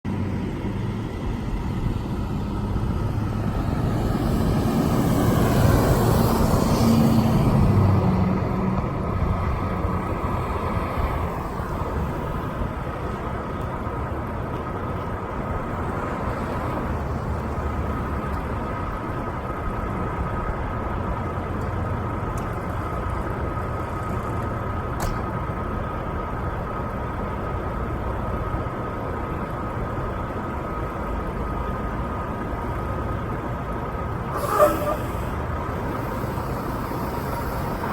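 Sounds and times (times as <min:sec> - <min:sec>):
truck diesel engine rumbling: 0:00.0 - 0:37.9
vehicle passing: 0:00.2 - 0:12.3.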